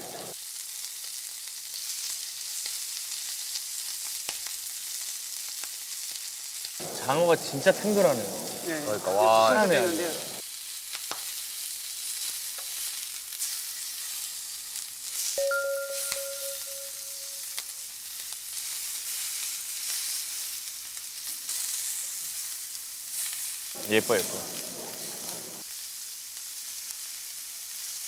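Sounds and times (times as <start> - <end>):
fish sizzling on a grill: 0.0 - 15.3, 18.6 - 28.0
short ringing tone: 15.4 - 17.4.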